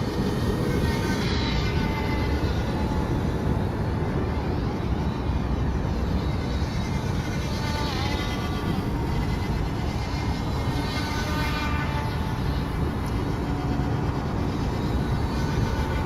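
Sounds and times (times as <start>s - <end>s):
low outdoor rush: 0.0s - 16.0s
small electric motor whine: 0.0s - 16.0s.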